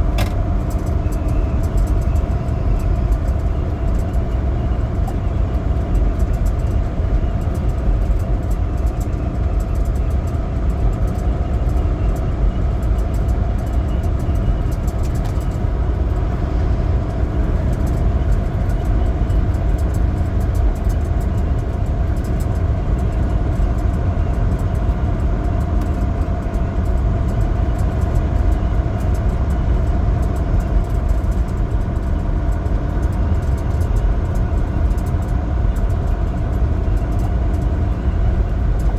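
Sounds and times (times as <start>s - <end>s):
diesel truck engine rumble: 0.0s - 38.9s
road noise: 12.7s - 38.9s.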